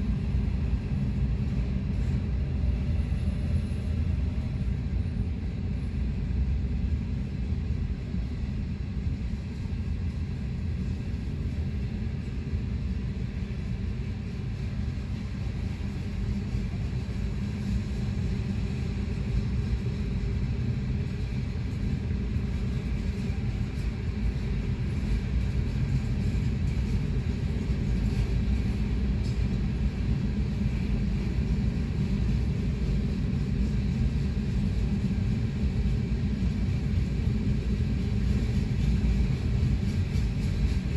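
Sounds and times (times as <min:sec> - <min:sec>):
train wheels rumbling on rail: 0:09.2 - 0:40.9.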